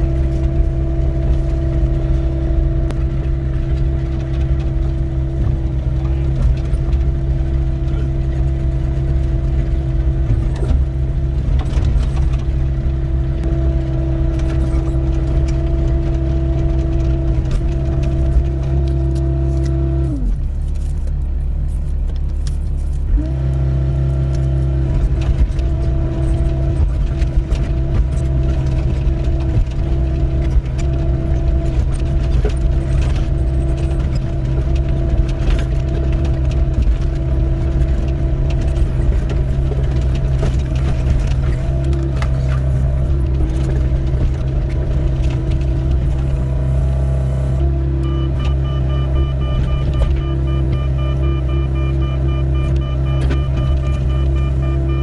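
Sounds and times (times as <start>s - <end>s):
excavator engine under load: 0.0s - 55.0s
whining tone: 22.4s - 55.0s.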